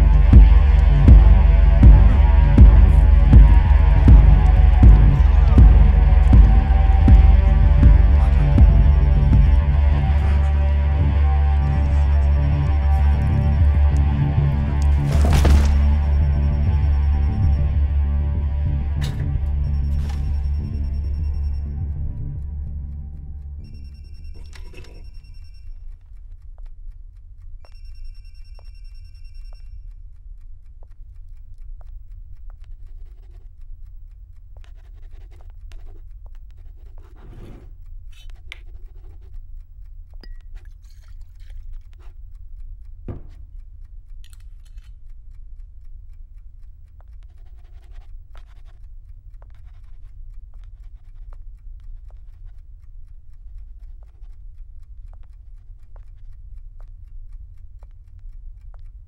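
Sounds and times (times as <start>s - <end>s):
faint clock ticking: 0.0s - 14.9s, 16.1s - 59.0s
steady low hum: 0.0s - 59.0s
short scratching noises: 34.7s - 39.4s.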